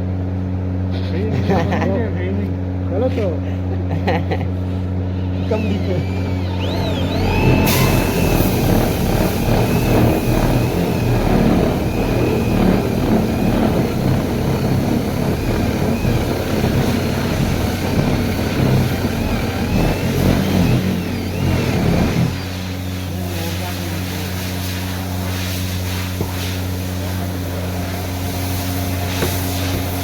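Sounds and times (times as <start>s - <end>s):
woodworking machine motor humming: 4.0s - 30.0s
rough grinding rasp of cutting wood: 5.2s - 23.6s.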